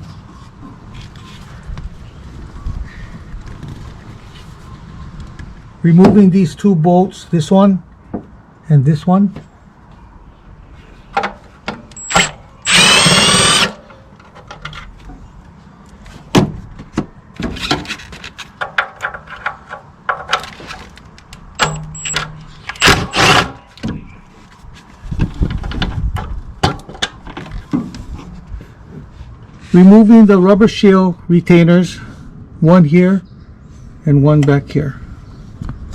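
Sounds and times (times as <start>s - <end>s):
tool clicks: 11.9s - 13.8s, 21.2s - 23.5s
power ratchet motor whirring: 12.0s - 13.9s.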